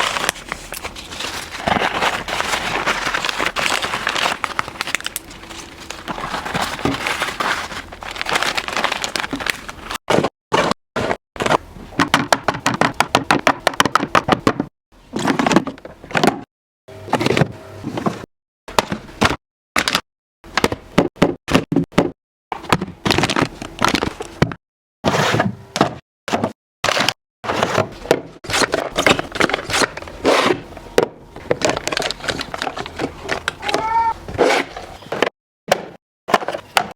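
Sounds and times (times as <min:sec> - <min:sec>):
food packaging crinkling: 0:00.0 - 0:10.0, 0:31.4 - 0:34.1
plastic containers tapping and knocking: 0:11.4 - 0:14.7.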